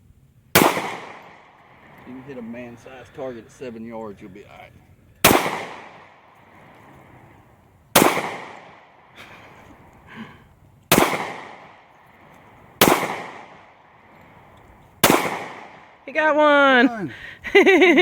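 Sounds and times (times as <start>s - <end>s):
handgun shots echoing: 0.6s - 2.1s, 5.2s - 6.8s, 8.0s - 9.1s, 10.9s - 16.0s.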